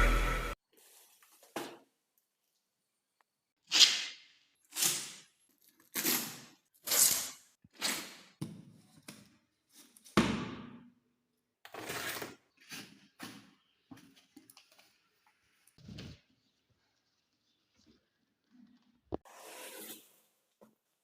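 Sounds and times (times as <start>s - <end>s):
handling scrapes and rustles: 0.7s - 1.6s.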